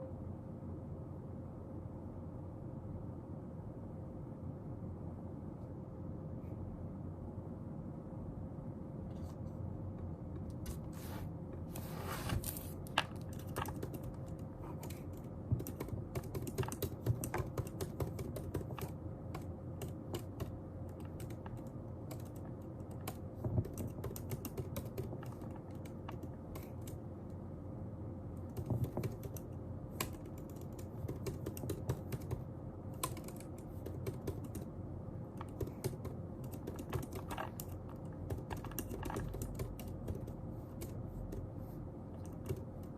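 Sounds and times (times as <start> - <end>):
faint steady hum: 0.0 - 42.9
computer keyboard typing: 12.9 - 27.0, 28.4 - 41.5, 42.2 - 42.9.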